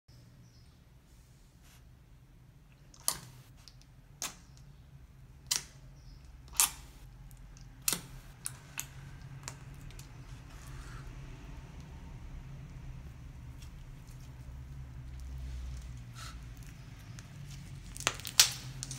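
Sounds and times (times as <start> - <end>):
slime popping and squelching: 16.5 - 18.9.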